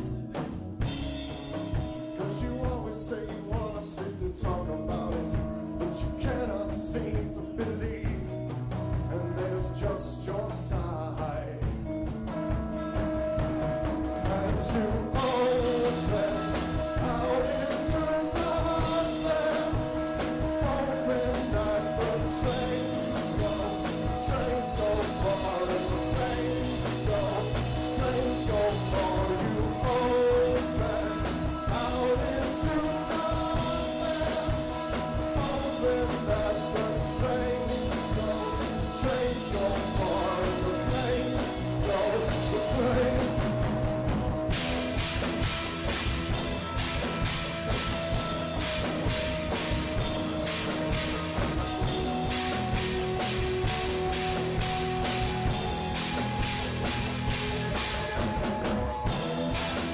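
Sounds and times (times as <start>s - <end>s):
cymbals and drums: 0.0s - 11.0s, 11.6s - 59.9s
rock band playing: 0.0s - 59.9s
held bending melody line: 12.0s - 59.9s.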